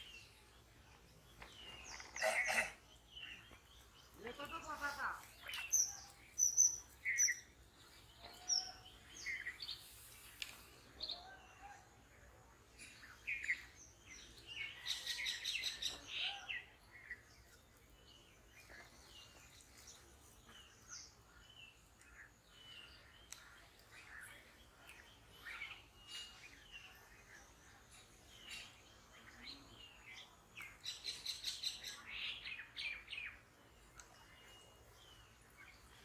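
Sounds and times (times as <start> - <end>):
birds chirping and calling: 0.0 - 36.0.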